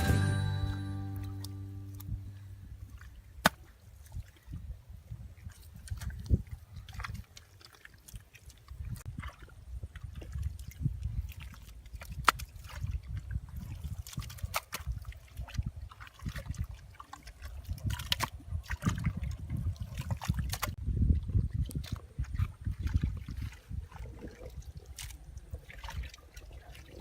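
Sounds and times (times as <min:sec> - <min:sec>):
constant low rumble: 0:00.0 - 0:03.8
water sloshing and dripping: 0:02.8 - 0:27.0
sharp clicks and splashes: 0:05.4 - 0:27.0.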